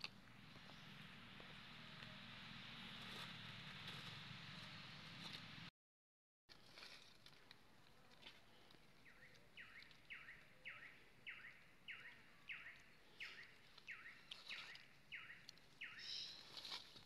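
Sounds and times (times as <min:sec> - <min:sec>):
rustle: 0:00.0 - 0:05.7, 0:06.5 - 0:08.9, 0:12.7 - 0:17.0
bird calling faintly: 0:09.0 - 0:17.0.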